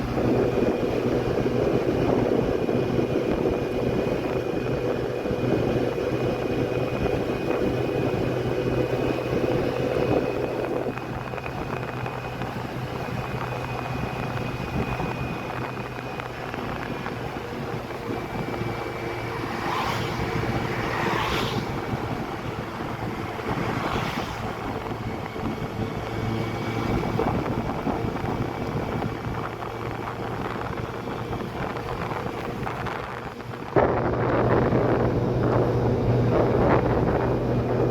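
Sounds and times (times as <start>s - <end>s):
motorcycle engine running: 0.0s - 37.9s
wind rushing over microphone: 0.0s - 37.9s
brief whooshes: 19.4s - 21.9s.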